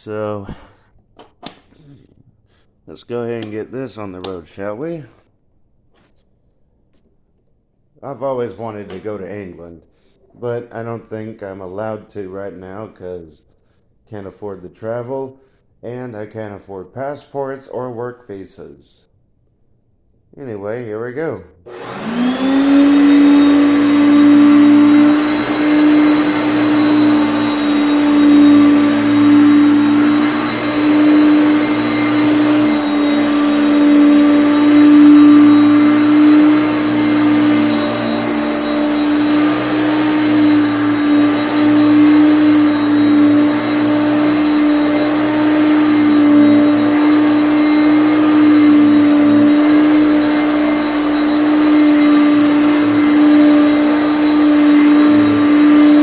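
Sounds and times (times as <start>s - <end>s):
upright vacuum cleaner running: 21.7s - 56.0s.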